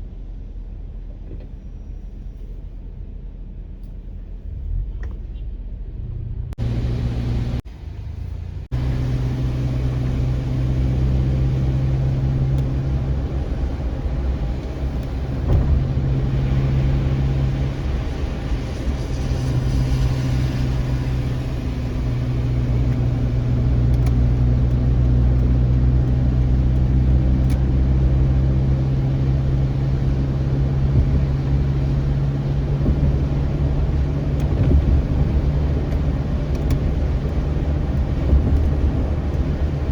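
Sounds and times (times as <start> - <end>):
car engine and road hum: 0.0 - 39.9.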